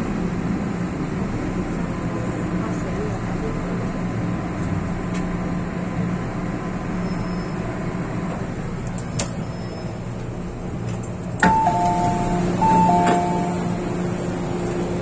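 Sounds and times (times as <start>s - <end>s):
train rumble and hum: 0.0s - 15.0s
two-note falling chime: 11.5s - 13.7s.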